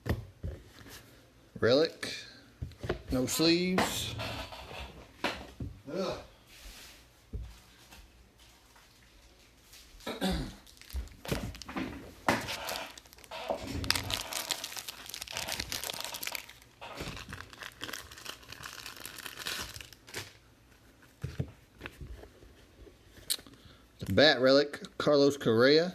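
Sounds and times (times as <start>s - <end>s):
card pack wrappers tearing and crinkling: 10.6s - 20.4s.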